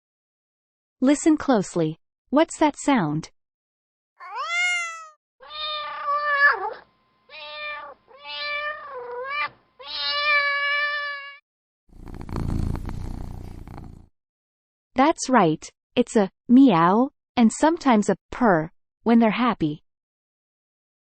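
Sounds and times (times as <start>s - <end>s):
cat meowing: 4.2s - 11.4s
cat purring: 11.9s - 14.1s.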